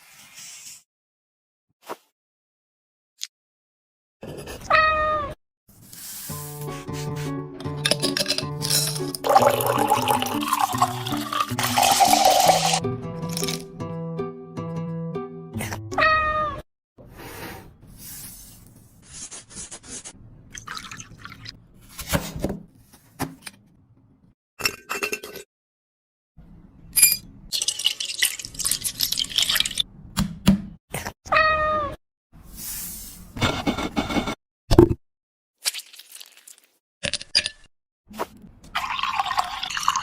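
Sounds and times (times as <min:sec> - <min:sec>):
cat meowing: 0:16.0 - 0:16.6, 0:31.3 - 0:32.0.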